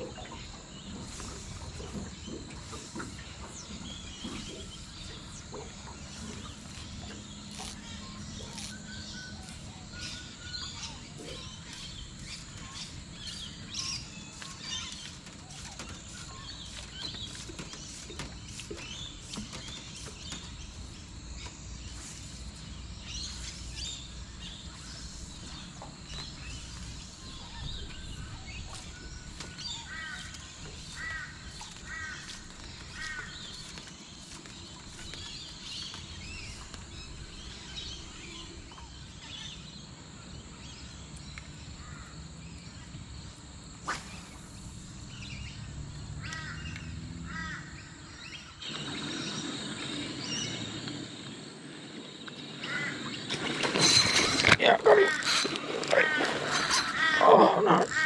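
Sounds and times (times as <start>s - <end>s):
birds calling and chirping: 0.0s - 58.0s
crow-like caws: 46.2s - 46.7s, 47.3s - 47.8s.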